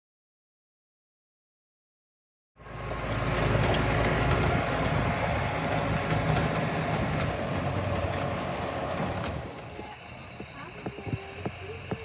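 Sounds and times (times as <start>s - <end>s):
high-pitched squeal: 2.6s - 5.9s
miniature train rumbling: 2.6s - 12.0s.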